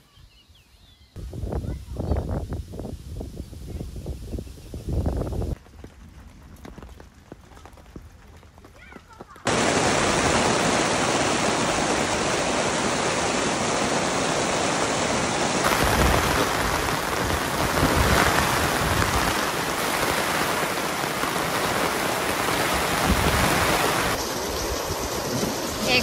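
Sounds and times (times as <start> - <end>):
heavy rain on tent fabric: 9.4 - 26.0.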